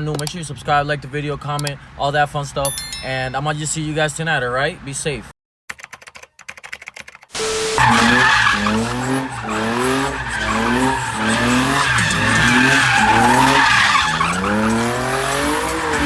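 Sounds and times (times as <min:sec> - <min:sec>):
car engine revving: 0:07.4 - 0:16.0
tyres squealing: 0:07.4 - 0:16.0.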